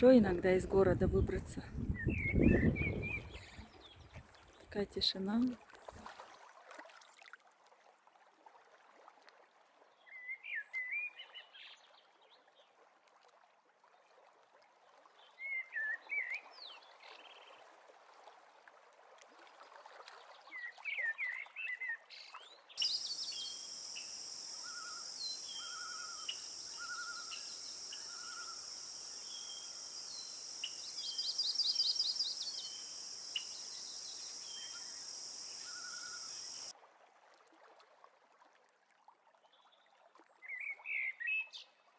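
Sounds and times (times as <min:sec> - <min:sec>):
wild birds singing: 0:00.0 - 0:04.1, 0:22.8 - 0:36.7
bird chirps: 0:22.8 - 0:36.7.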